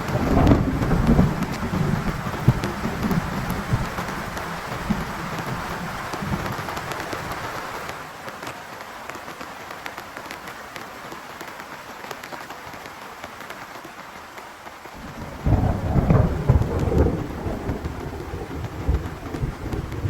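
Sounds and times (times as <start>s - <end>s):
low rumble of thunder: 0.0s - 6.8s, 15.0s - 20.0s
heavy rain falling: 0.0s - 20.0s.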